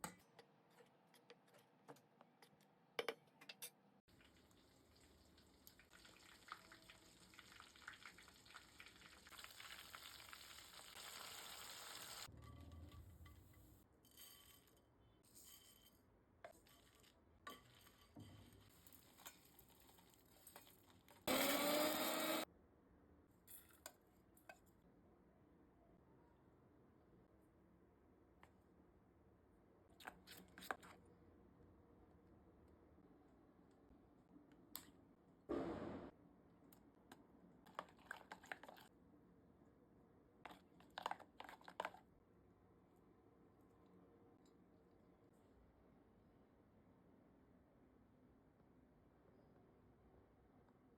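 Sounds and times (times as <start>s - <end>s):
kitchen appliance motor spinning: 21.3s - 22.5s.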